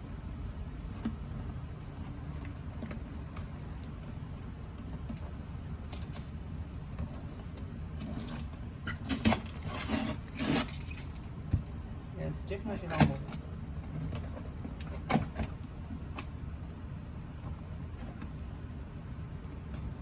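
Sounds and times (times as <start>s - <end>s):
low background hum: 0.0s - 20.0s
box rustling and scraping: 7.2s - 11.2s.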